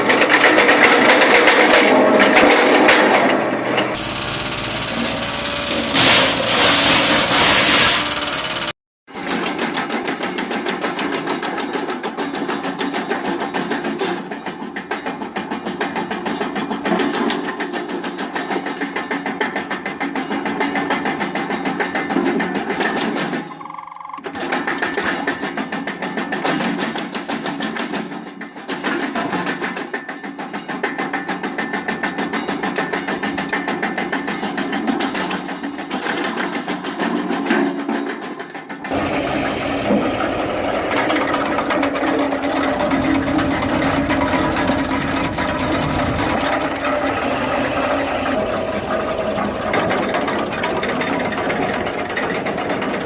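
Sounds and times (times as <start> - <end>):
wood chipper running: 0.0 - 13.2, 38.8 - 53.0.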